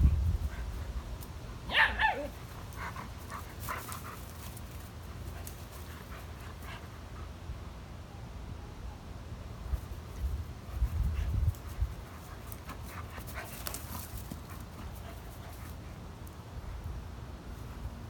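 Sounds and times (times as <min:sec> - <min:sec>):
dogs yipping and whining: 0:01.7 - 0:02.9.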